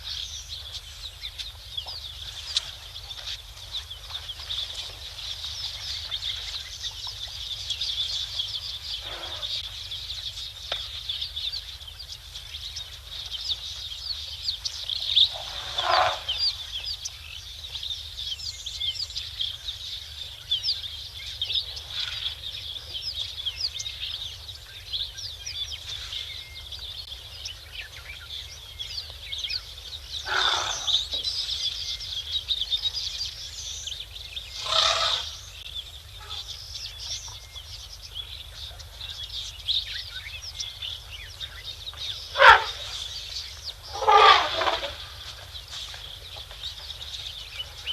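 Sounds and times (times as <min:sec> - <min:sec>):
small birds chirping: 0:00.0 - 0:47.9
fowl-like bird calls: 0:15.3 - 0:16.5, 0:30.3 - 0:31.0, 0:34.6 - 0:35.4, 0:42.3 - 0:42.9, 0:43.9 - 0:45.1.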